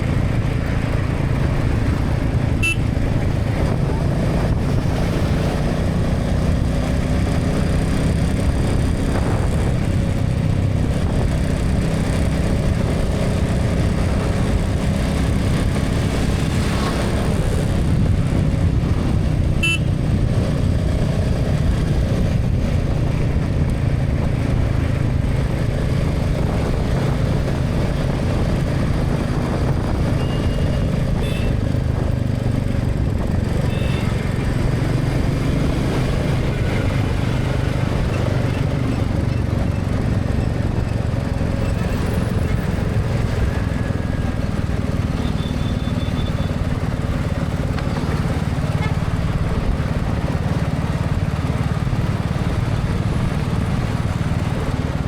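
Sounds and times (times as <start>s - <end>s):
motorcycle engine and road rumble: 0.0s - 55.0s
short horn toots: 2.6s - 2.9s, 19.6s - 19.9s.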